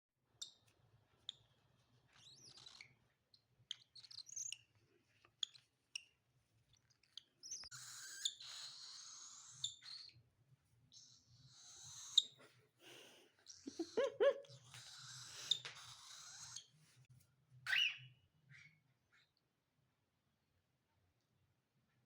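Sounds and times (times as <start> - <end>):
bird chicks chirping: 0.4 - 10.3, 10.9 - 16.8.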